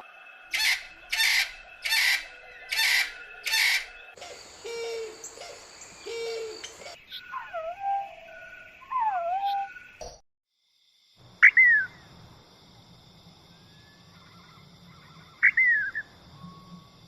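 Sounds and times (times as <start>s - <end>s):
bird calls slurring downward: 0.5s - 9.8s.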